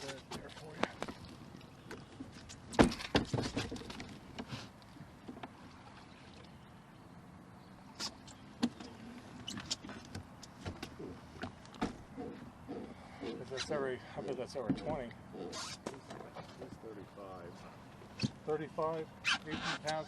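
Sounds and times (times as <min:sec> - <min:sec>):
knocks and thumps in a boat: 0:00.0 - 0:05.7, 0:08.0 - 0:12.5, 0:14.3 - 0:15.1.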